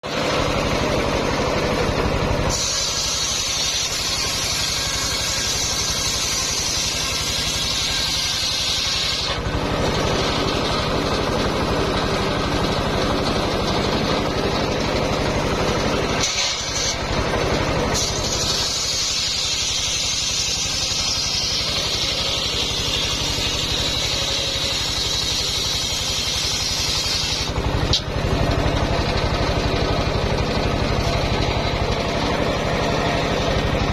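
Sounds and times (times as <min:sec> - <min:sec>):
engine droning: 0:00.0 - 0:33.9
saw blade ripping through log: 0:02.5 - 0:10.9, 0:16.1 - 0:17.2, 0:17.9 - 0:28.1.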